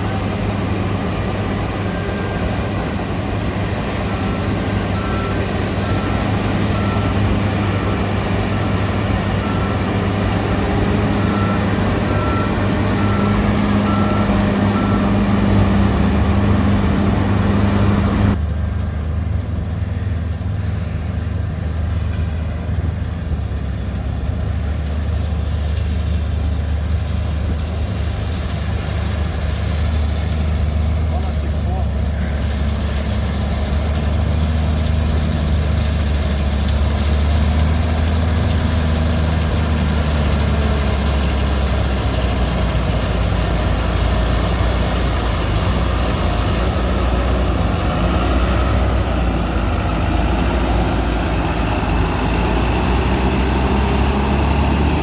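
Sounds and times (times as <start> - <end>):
diesel farm machinery running: 0.0 - 55.0
faint beeping: 15.5 - 21.4.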